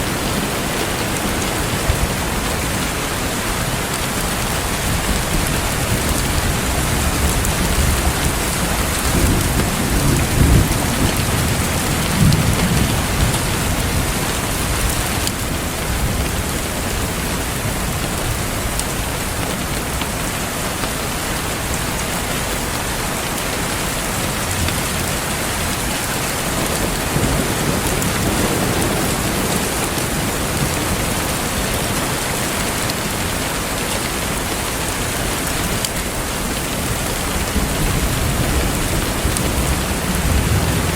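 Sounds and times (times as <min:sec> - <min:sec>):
heavy rain hissing: 0:00.0 - 0:40.9
thunder rumbling: 0:04.6 - 0:18.6, 0:24.6 - 0:31.8, 0:36.8 - 0:40.9.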